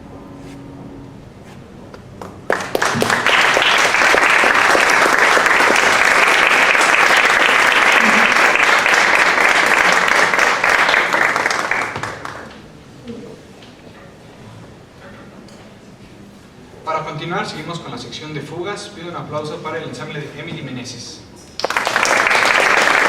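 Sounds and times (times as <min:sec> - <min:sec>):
audience applauding: 0:02.2 - 0:12.7, 0:21.5 - 0:23.0.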